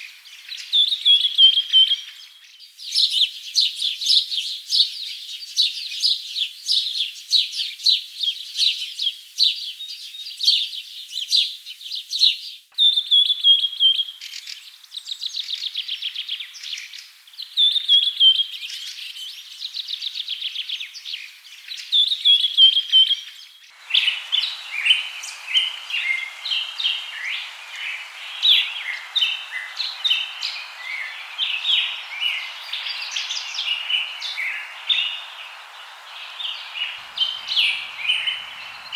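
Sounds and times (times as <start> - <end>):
birds chirping and singing: 22.1 - 38.9
steady background hiss: 23.7 - 38.9.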